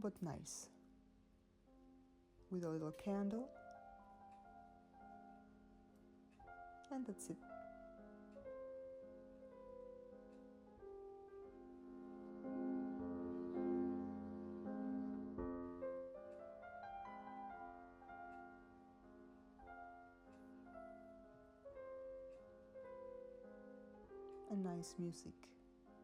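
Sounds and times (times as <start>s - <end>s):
soft piano music: 0.0s - 26.0s.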